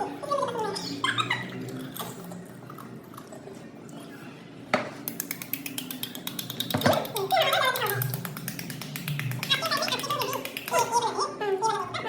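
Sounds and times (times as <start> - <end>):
quiet eating sounds: 0.0 - 12.0
music with rapid tapping beat: 5.1 - 11.0.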